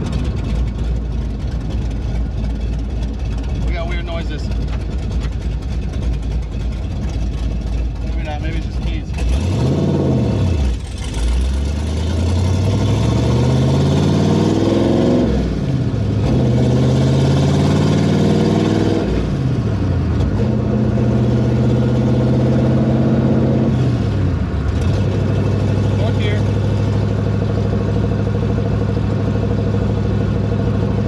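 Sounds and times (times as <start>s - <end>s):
car engine accelerating: 0.0s - 31.0s.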